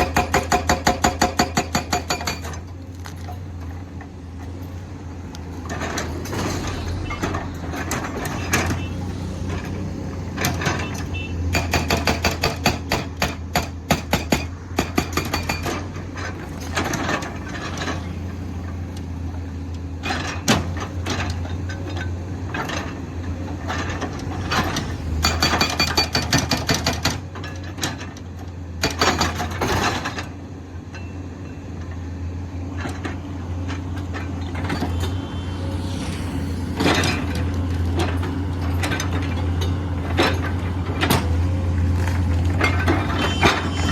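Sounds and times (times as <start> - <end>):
diesel engine running: 2.6 - 11.7, 15.9 - 28.8, 32.1 - 43.9.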